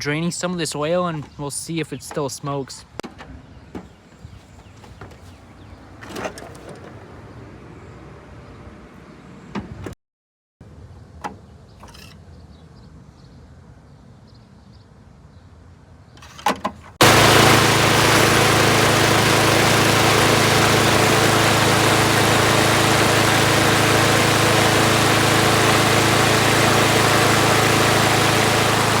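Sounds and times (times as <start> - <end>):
lawn mower engine running: 17.0 - 29.0.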